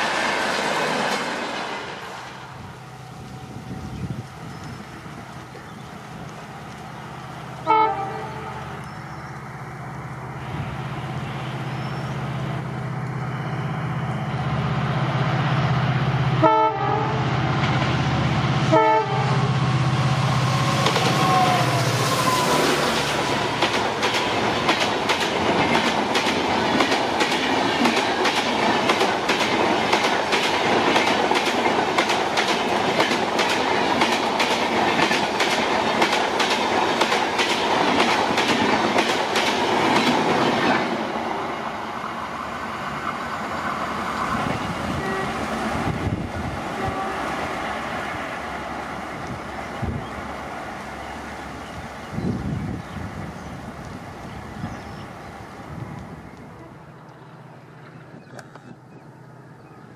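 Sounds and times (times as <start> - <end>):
train engine hum: 0.0 - 59.9
train horn blasts: 7.6 - 8.8, 16.4 - 17.3, 18.7 - 23.0, 44.9 - 45.6, 46.7 - 47.4, 56.5 - 57.0
wheels clicking over rail joints: 23.4 - 41.0.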